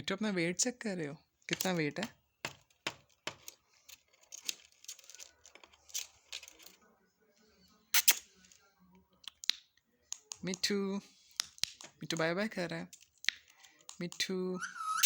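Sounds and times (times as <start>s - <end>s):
parrot rasping: 14.6s - 15.0s.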